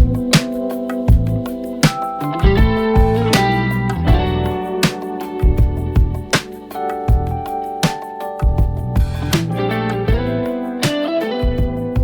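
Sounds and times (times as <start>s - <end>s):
guitar-led music with bass: 0.0s - 12.0s
sharp drum hits: 8.4s - 10.3s.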